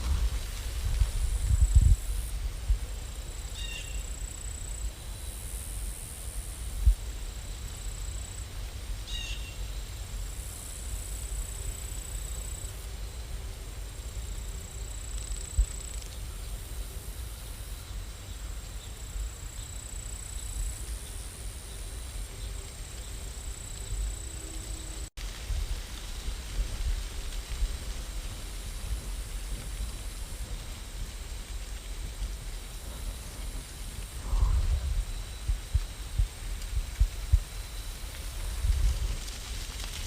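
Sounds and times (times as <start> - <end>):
rain hiss: 0.0 - 40.0
low rumble: 28.7 - 37.5.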